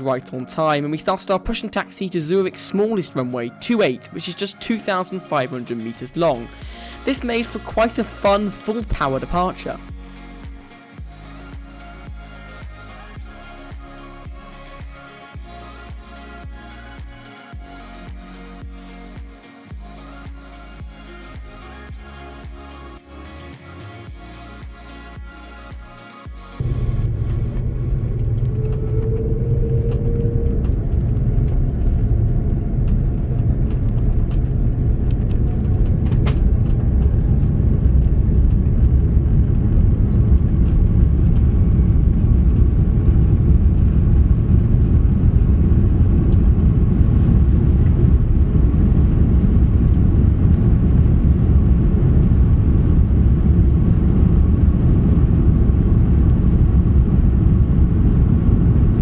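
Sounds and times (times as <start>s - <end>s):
jet engines rumbling in cabin: 26.6s - 59.0s.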